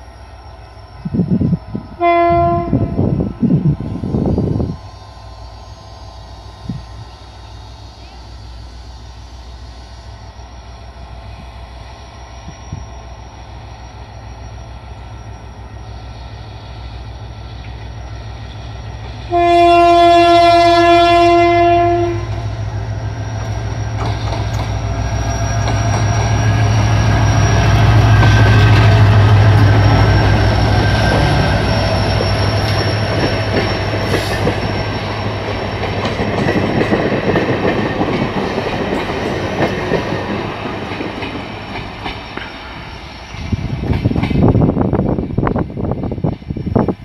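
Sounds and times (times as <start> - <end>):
locomotive engine droning: 0.0 - 44.2
locomotive horn: 2.0 - 3.1, 19.2 - 22.4
train wheels clattering on rails: 17.5 - 47.0.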